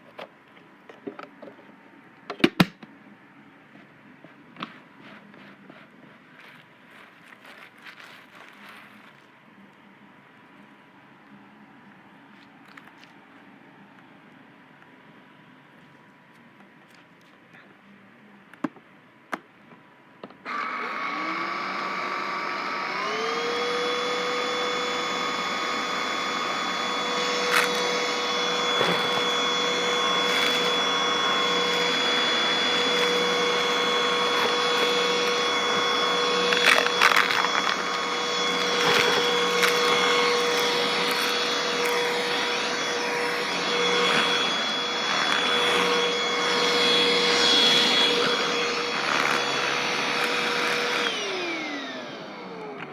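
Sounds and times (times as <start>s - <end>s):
vacuum cleaner motor whine: 20.4s - 52.9s
debris crackling in vacuum: 27.4s - 42.2s.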